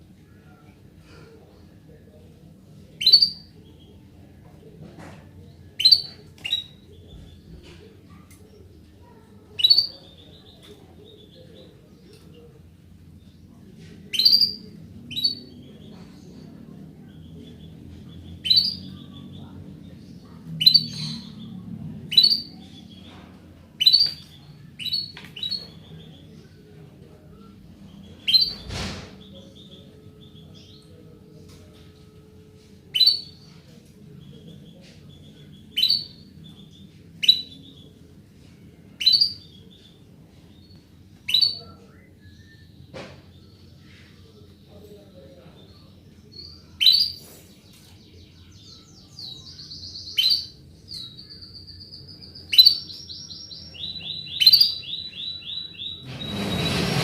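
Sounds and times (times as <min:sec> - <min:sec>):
canary chirping: 0:02.9 - 0:04.0, 0:05.6 - 0:07.6, 0:09.4 - 0:11.8, 0:14.1 - 0:23.2, 0:23.8 - 0:31.2, 0:32.9 - 0:38.2, 0:39.0 - 0:43.9, 0:44.7 - 0:57.0.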